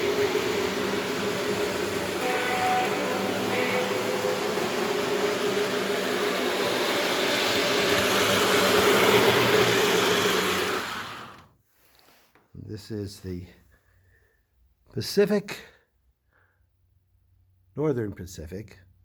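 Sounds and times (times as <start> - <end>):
model train running on rails: 0.0 - 11.5.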